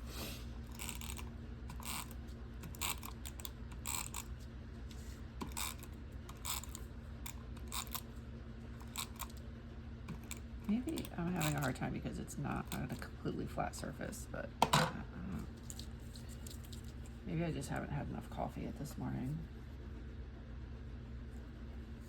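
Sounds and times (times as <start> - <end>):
tape runner scratching on paper: 0.7 - 8.1.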